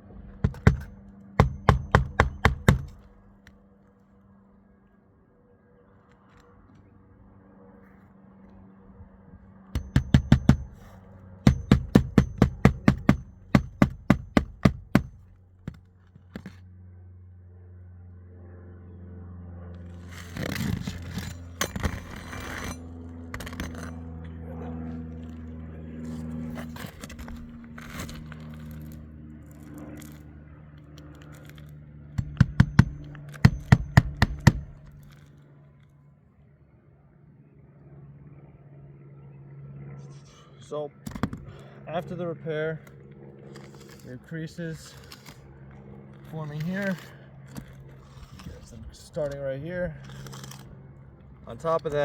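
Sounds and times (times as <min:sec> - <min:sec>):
steady low hum: 0:00.0 - 0:52.0
hammer striking nails: 0:00.4 - 0:03.1, 0:09.8 - 0:16.6, 0:32.2 - 0:35.1
scraping: 0:19.9 - 0:24.1, 0:43.5 - 0:50.8.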